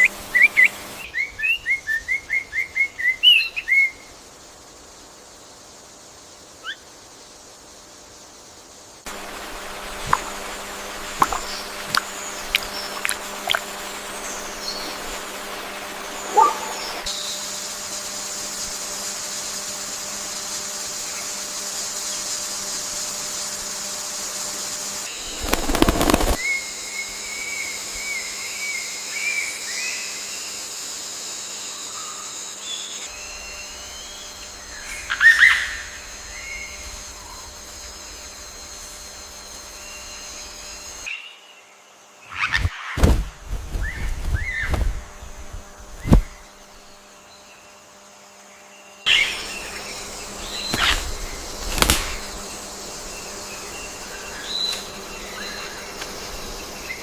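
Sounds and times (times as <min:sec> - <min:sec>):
high-pitched insect drone: 0:00.0 - 0:42.3, 0:44.7 - 0:57.0
birds chirping and calling: 0:25.1 - 0:26.4
loud sudden rustle: 0:25.1 - 0:26.4, 0:42.6 - 0:45.0, 0:50.7 - 0:52.4.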